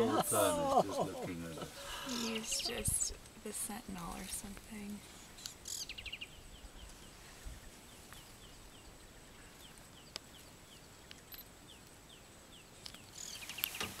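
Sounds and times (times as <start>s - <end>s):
busy bird calls: 1.5s - 3.2s, 5.0s - 14.0s.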